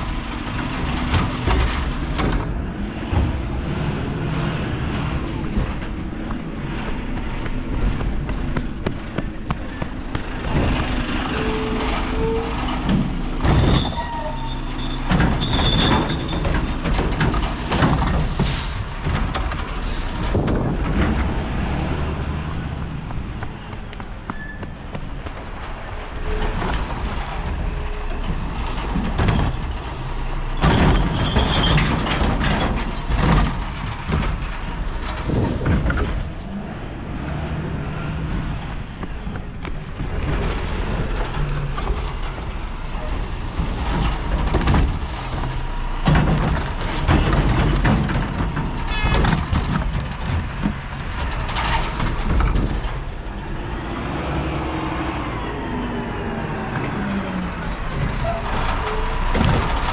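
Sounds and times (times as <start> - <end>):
high squeals: 0.0 - 0.7, 8.8 - 12.8, 13.6 - 16.5, 24.2 - 29.0, 39.6 - 44.1, 53.4 - 59.9
truck diesel engine running: 0.0 - 11.2
clanks and knocks: 0.0 - 25.5, 26.2 - 37.6, 38.2 - 54.4, 57.8 - 59.9.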